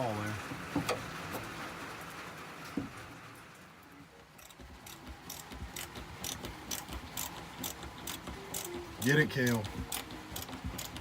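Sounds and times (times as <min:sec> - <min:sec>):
hand ratchet clicking: 0:04.4 - 0:11.0.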